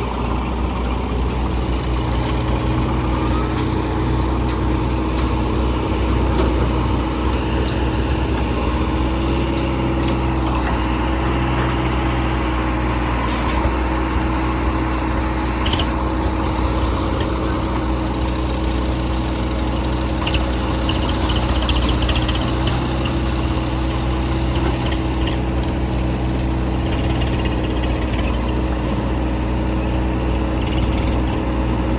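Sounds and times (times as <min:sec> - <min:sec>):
diesel machinery engine hum: 0:00.0 - 0:31.9.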